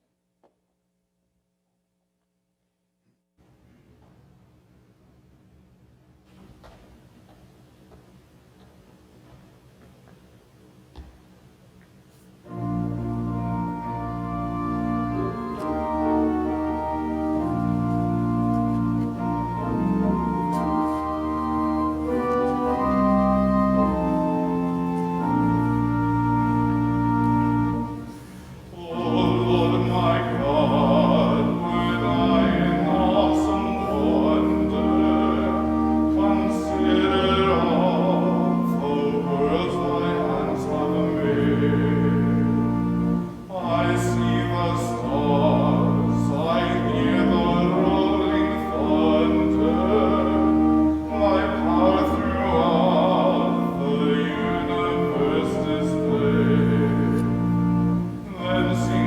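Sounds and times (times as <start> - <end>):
low accompaniment chords: 12.4 - 59.0
classical solo singing: 12.5 - 59.0.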